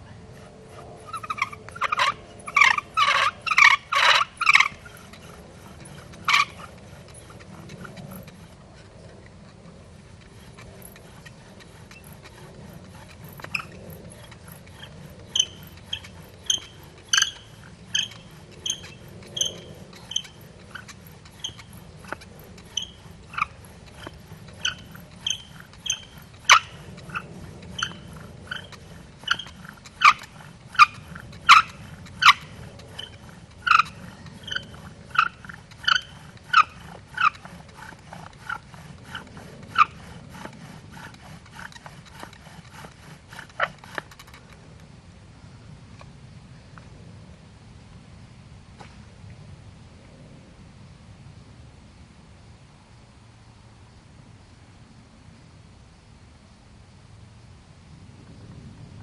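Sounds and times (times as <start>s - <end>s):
bow drill spindle squeaking: 0.0s - 44.6s.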